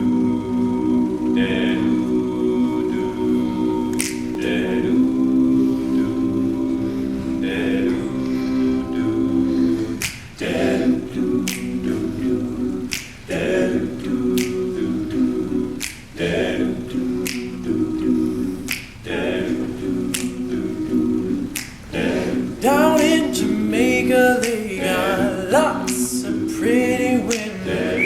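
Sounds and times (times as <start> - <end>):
voices singing wordless chords: 0.0 - 28.0
finger snaps: 3.9 - 4.6, 10.0 - 10.5, 11.4 - 13.4, 14.3 - 14.8, 15.8 - 16.2, 17.2 - 17.7, 18.3 - 19.1, 20.1 - 20.6, 21.5 - 22.0, 24.4 - 24.8, 25.8 - 26.3, 27.3 - 28.0.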